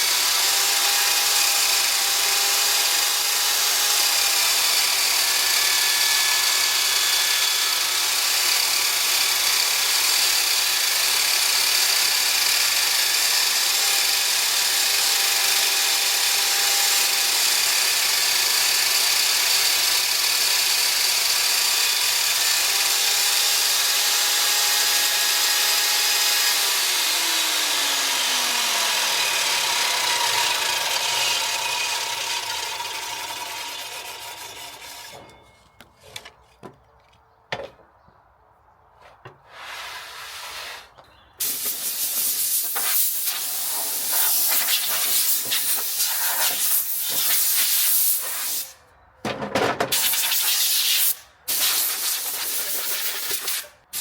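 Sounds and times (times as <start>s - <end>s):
power tool running on wood: 0.0s - 35.2s.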